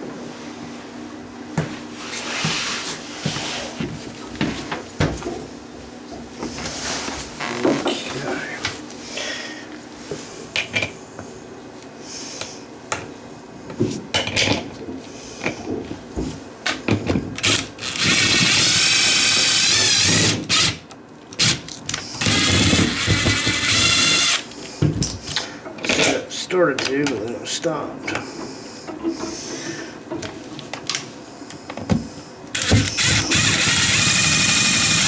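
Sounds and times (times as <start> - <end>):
power drill driving screws: 17.4 - 20.8, 22.2 - 24.4, 32.5 - 35.0.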